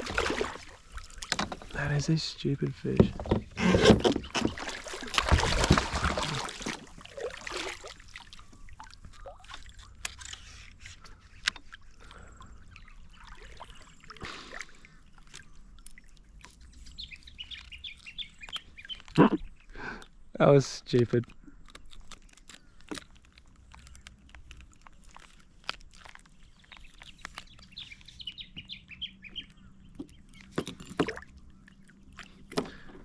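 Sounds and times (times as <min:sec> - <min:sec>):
kayak handling rustling: 0:00.0 - 0:12.2
birds chirping: 0:00.0 - 0:22.9, 0:26.1 - 0:33.0
water noise: 0:00.0 - 0:33.0.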